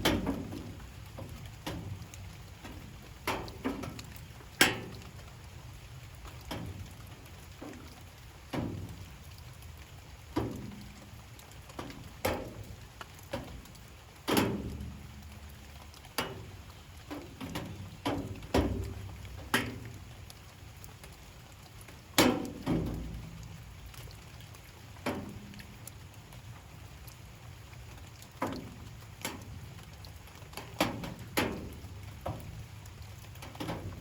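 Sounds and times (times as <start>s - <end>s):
faint rain hiss: 0.0s - 34.0s
raindrops tapping: 0.0s - 34.0s.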